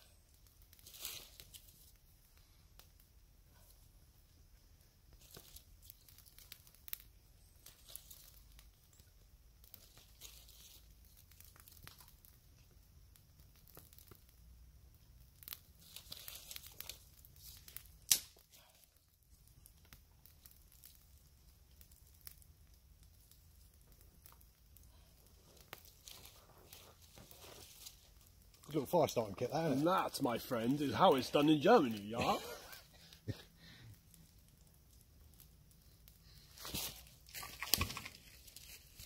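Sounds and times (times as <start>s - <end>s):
kindling crinkling and snapping: 0.0s - 39.0s
sharp crack: 15.4s - 18.5s.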